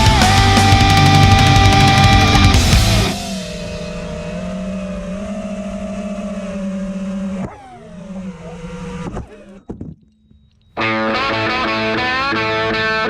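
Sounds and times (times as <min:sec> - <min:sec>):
quadcopter motors whining: 0:00.0 - 0:09.9
sharp clicks: 0:08.8 - 0:10.9.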